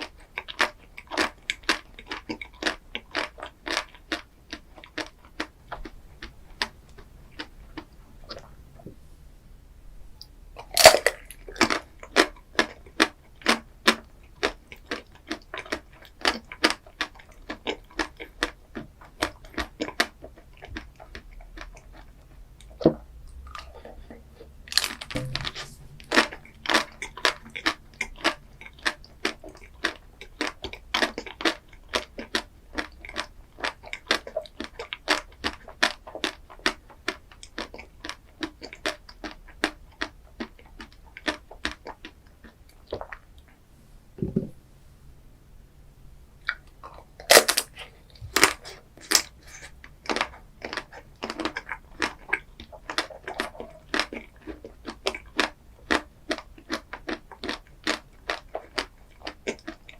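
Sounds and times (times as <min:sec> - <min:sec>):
person chewing crunchy food: 0:00.0 - 0:09.0, 0:10.6 - 0:43.6, 0:46.4 - 0:59.9.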